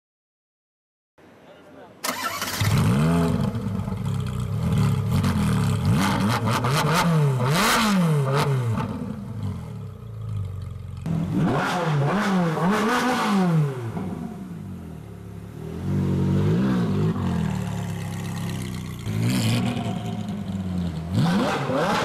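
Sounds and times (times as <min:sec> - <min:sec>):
car engines revving: 0:02.1 - 0:22.0.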